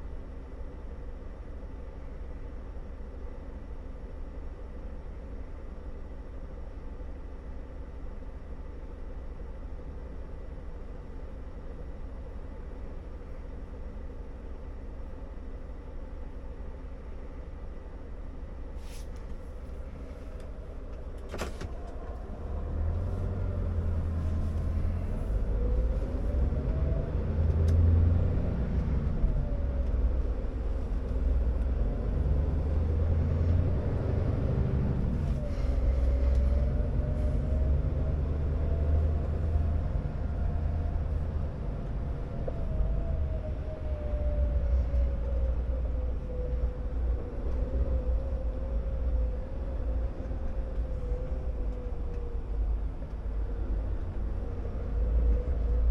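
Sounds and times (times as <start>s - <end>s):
engine whine rising in pitch: 21.6s - 55.9s.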